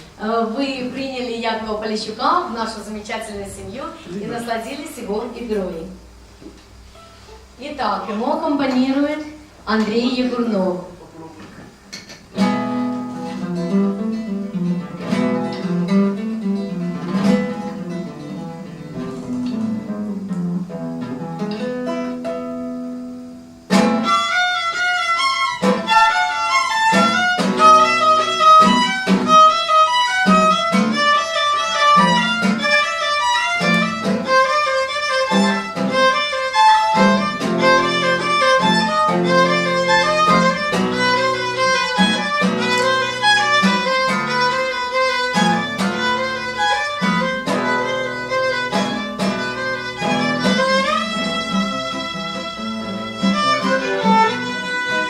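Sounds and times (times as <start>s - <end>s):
acoustic guitar: 0.0s - 55.0s
violin melody: 23.7s - 55.0s.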